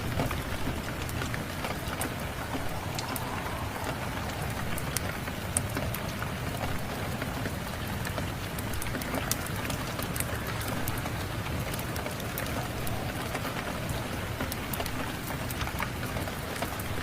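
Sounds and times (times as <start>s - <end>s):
wood fire crackling: 0.0s - 15.6s
steady rain: 0.0s - 17.0s.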